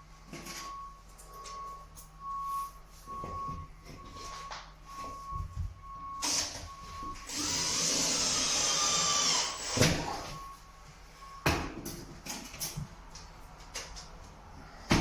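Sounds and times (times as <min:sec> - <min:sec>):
power drill driving a screw: 0:07.3 - 0:10.1.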